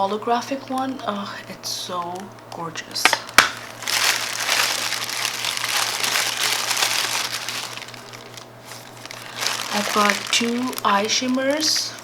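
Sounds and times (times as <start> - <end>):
packaging crinkling: 3.0 - 12.0.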